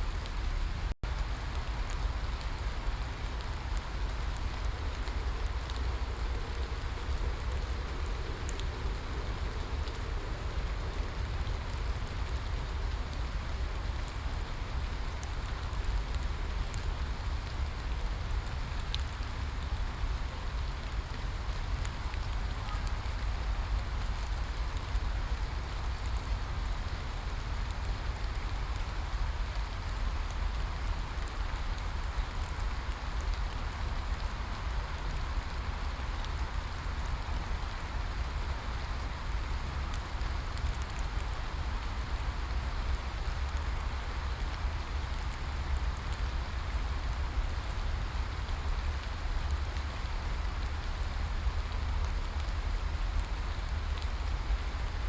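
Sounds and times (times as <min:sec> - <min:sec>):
steady rain hiss: 0:00.0 - 0:55.0
small drop ticks: 0:18.9 - 0:19.2.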